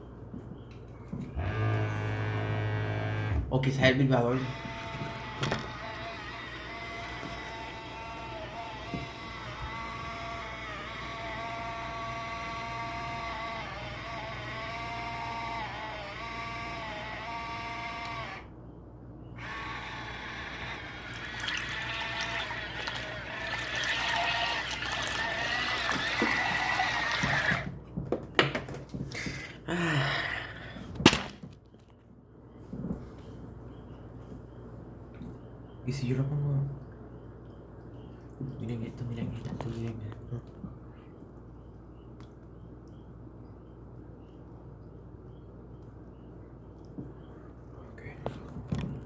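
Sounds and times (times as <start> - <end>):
small motor whining: 1.3 - 3.5, 4.1 - 18.5, 19.4 - 27.8
water churning and splashing: 21.1 - 27.6.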